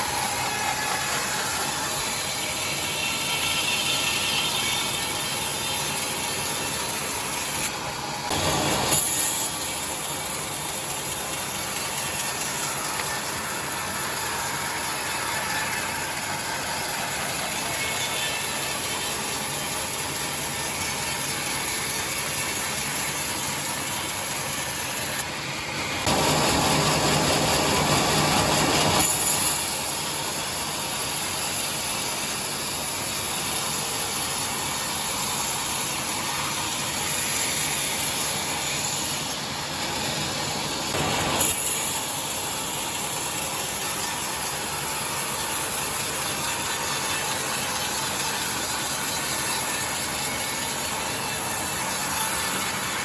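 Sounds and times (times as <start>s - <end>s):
sawmill saw ripping boards: 0.0s - 53.0s.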